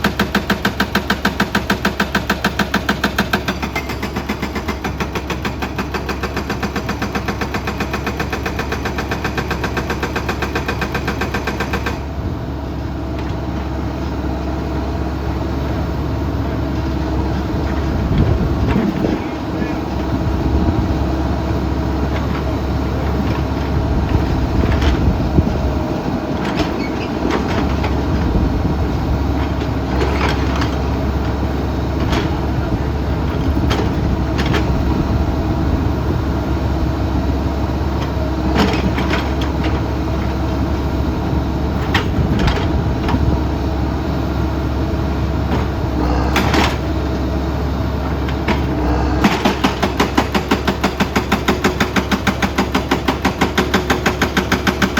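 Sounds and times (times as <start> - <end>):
excavator diesel engines running: 0.0 - 54.9.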